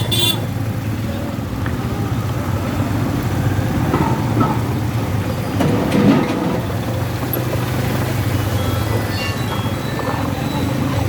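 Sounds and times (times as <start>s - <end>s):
street noise: 0.0s - 11.0s
vehicle engine humming: 0.0s - 11.0s.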